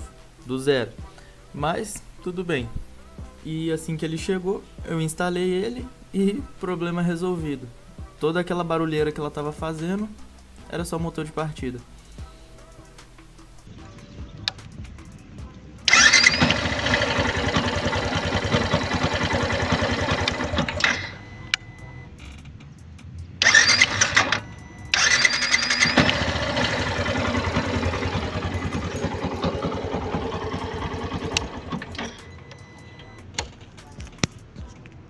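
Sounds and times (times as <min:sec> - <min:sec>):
loud engine burst: 0:15.9 - 0:21.2, 0:23.4 - 0:32.4
motorcycle engine running: 0:15.9 - 0:21.2, 0:23.4 - 0:32.5
electric starter motor: 0:15.9 - 0:22.0, 0:23.4 - 0:33.2.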